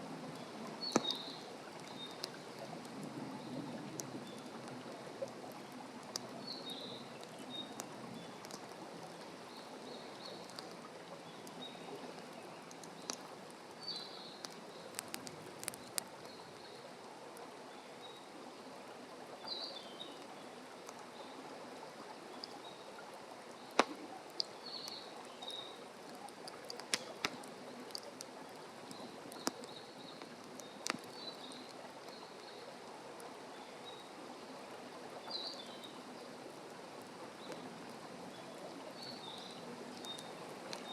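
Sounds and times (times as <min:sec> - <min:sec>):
wood fire crackling: 0:00.0 - 0:17.2, 0:21.8 - 0:33.3, 0:35.5 - 0:40.9.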